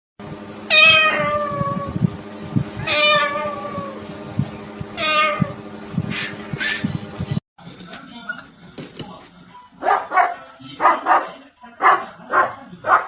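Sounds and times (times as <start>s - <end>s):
cat meowing: 0.7s - 2.0s, 2.8s - 4.0s, 5.0s - 5.6s.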